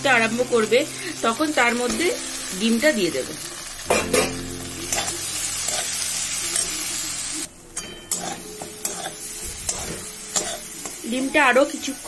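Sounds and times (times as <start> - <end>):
egg sizzling in oil: 0.0 - 12.0
steel spatula scraping pan: 7.8 - 10.8.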